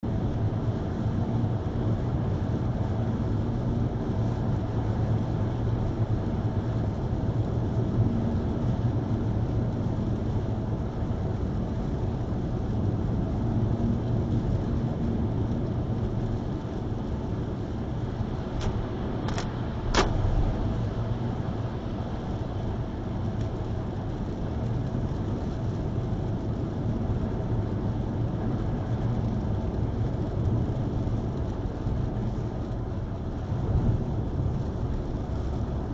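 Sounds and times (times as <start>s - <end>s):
car road and tyre noise: 0.0s - 35.9s
rain: 0.0s - 35.9s.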